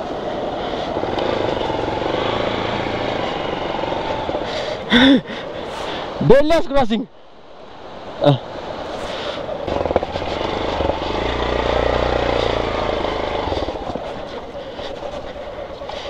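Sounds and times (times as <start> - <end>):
motorcycle engine under load: 0.9 - 4.5, 9.7 - 14.1.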